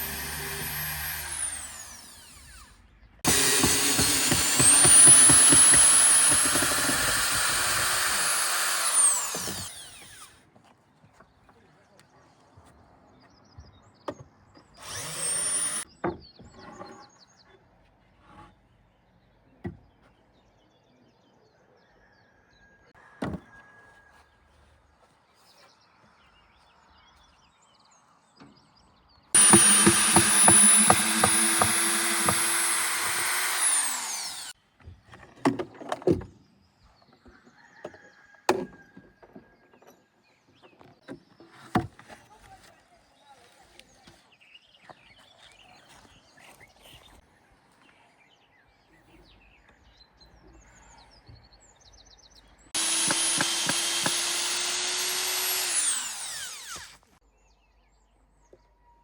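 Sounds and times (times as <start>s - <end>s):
power drill whirring: 0.0s - 10.4s, 14.8s - 15.8s, 29.4s - 34.6s, 52.7s - 57.2s.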